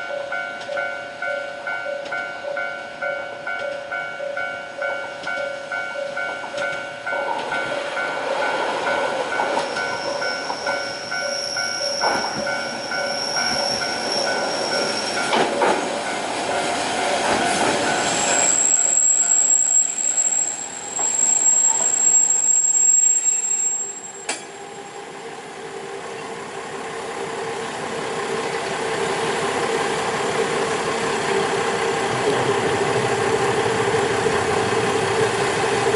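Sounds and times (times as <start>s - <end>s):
train wheels squealing: 7.6s - 16.0s, 17.0s - 25.0s
diesel engine hum: 24.8s - 35.9s.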